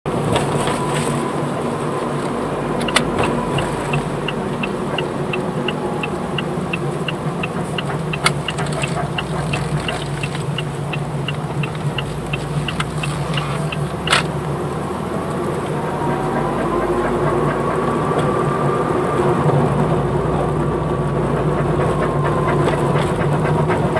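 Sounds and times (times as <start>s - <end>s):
wheel bearing drone: 0.1s - 23.9s.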